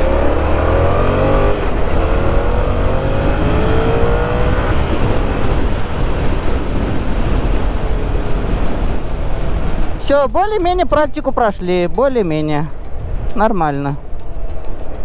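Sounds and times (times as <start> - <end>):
motorcycle engine accelerating: 0.0 - 10.0
wind and road noise: 0.0 - 15.0.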